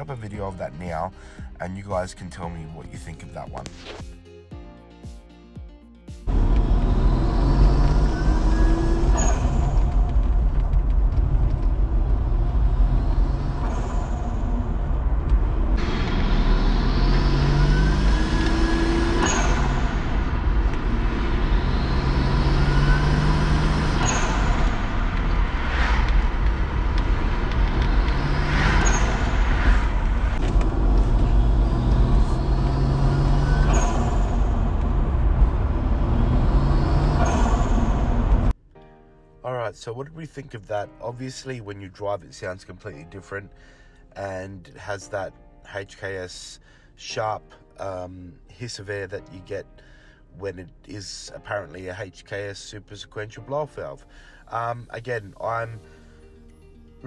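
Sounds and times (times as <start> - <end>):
car engine accelerating: 6.3 - 38.6.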